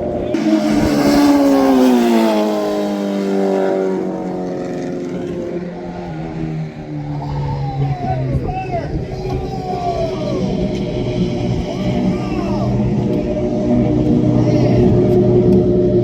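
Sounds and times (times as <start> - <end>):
vehicle driving past: 0.0 - 7.6.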